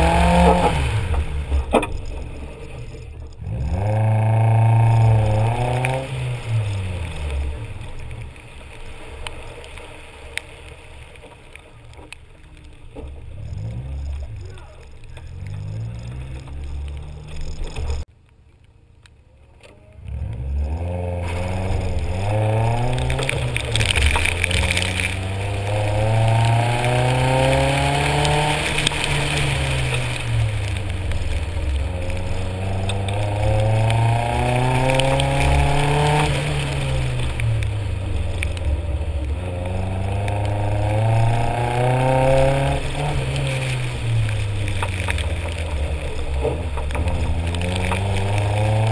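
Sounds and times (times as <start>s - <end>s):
car engine revving hard: 0.0s - 1.6s, 3.4s - 7.6s, 20.1s - 48.9s.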